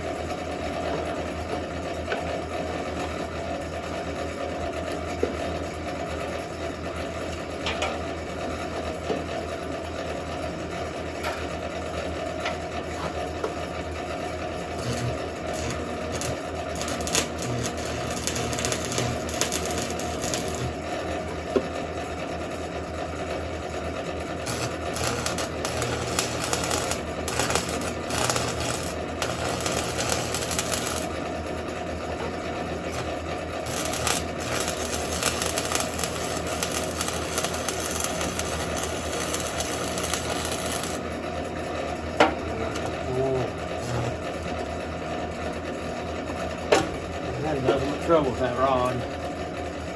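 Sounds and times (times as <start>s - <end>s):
welding arc crackling: 14.8s - 20.8s, 24.4s - 31.2s, 32.9s - 41.0s, 43.8s - 44.2s.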